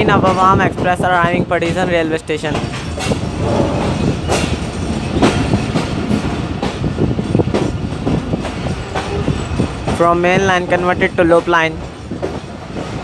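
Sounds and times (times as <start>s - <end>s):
locomotive rumbling: 2.9s - 5.7s.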